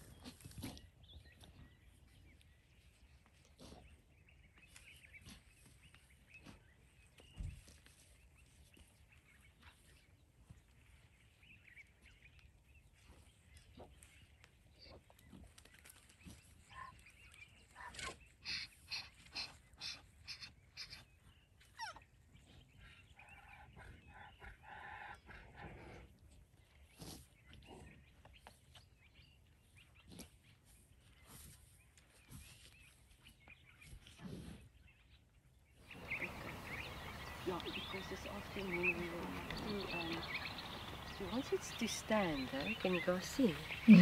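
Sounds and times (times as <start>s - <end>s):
sharp bird calls: 35.9s - 44.0s.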